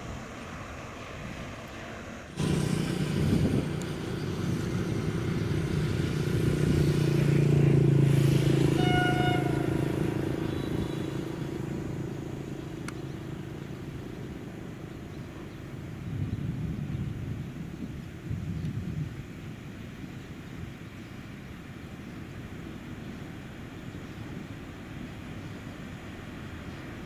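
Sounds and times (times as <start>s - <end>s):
diesel train engine passing: 0.0s - 17.0s
train horn: 7.3s - 12.0s.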